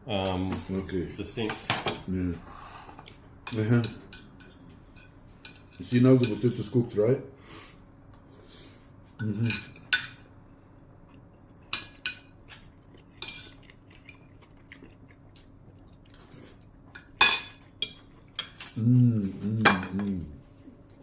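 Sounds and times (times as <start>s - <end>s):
faint steady hum: 0.0s - 21.0s
cutlery and dishes clinking: 17.0s - 18.8s.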